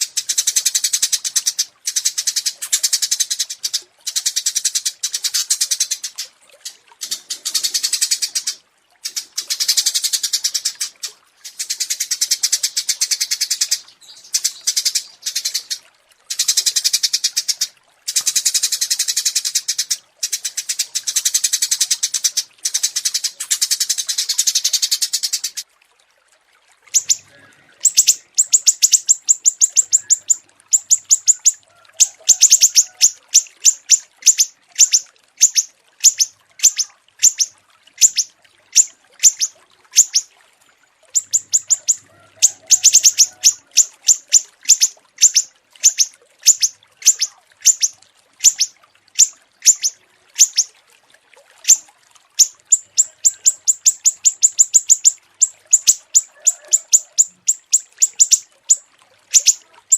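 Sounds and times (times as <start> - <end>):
songbirds trilling: 26.9 - 40.3, 41.1 - 50.7, 52.4 - 59.9
sharp high bird chirps: 27.0 - 31.6, 33.7 - 40.3, 41.2 - 50.7, 52.4 - 58.8, 59.4 - 59.6.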